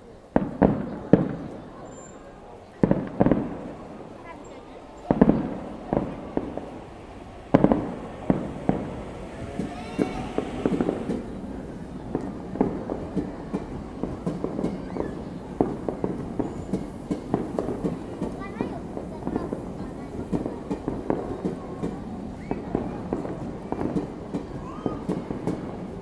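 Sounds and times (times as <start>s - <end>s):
fireworks bangs and pops: 2.8s - 6.8s.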